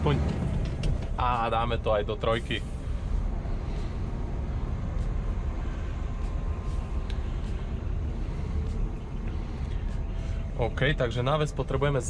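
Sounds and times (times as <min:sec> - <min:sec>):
diesel truck engine rumbling: 0:00.0 - 0:12.0.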